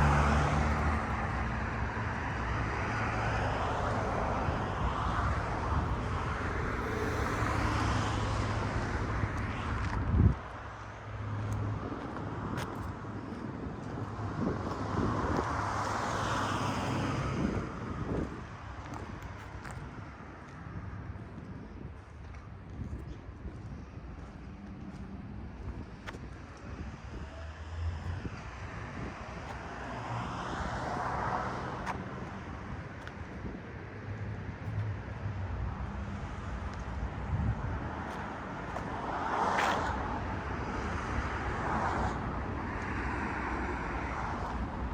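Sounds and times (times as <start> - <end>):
vehicle passing: 0.0 - 10.3
cars going by: 0.0 - 44.9.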